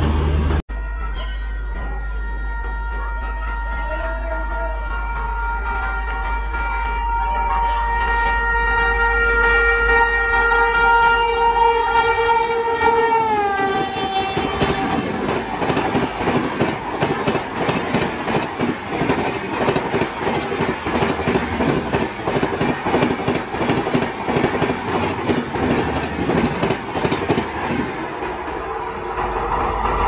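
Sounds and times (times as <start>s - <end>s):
train horn: 0.7s - 15.4s
train wheels clattering: 13.7s - 30.0s.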